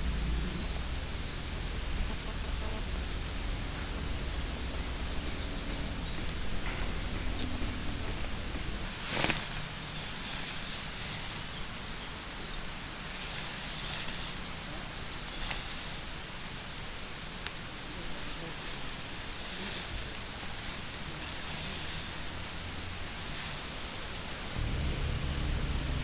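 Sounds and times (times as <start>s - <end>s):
small birds chirping: 0.0s - 17.3s
steady outdoor hiss: 0.0s - 26.0s.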